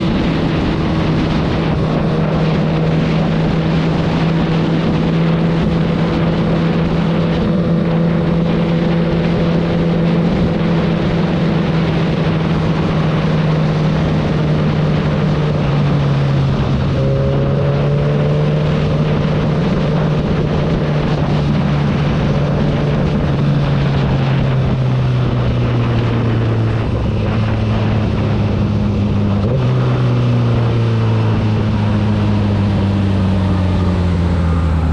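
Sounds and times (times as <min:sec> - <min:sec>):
motorcycle engine running: 0:00.0 - 0:34.9
wind noise on microphone: 0:00.0 - 0:34.9.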